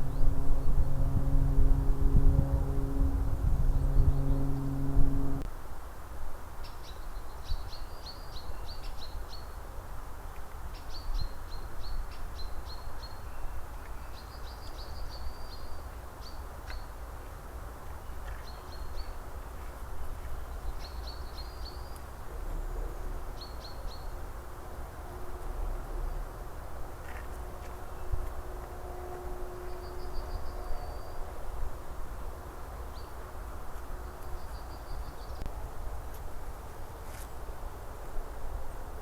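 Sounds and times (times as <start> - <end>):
steady rushing background noise: 0.0 - 5.5.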